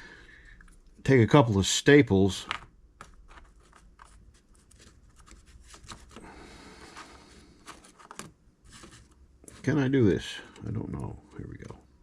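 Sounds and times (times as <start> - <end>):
soft rubbing: 3.2 - 9.9.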